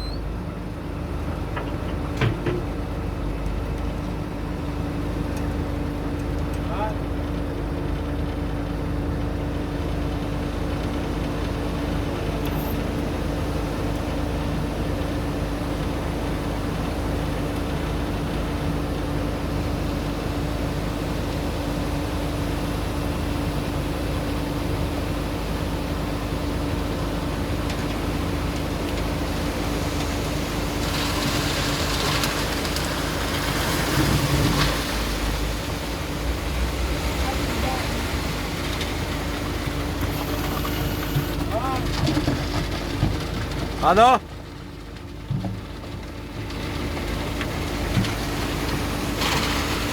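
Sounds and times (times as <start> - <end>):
diesel engine humming: 0.0 - 49.9
low rumble: 34.0 - 41.3.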